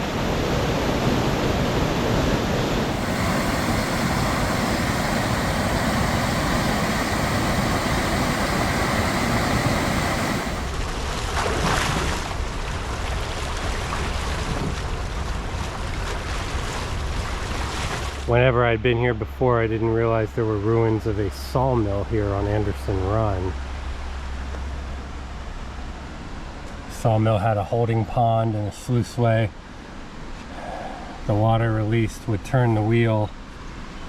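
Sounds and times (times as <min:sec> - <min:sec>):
waterfall rushing: 0:00.0 - 0:10.8
wind on microphone: 0:00.0 - 0:18.2.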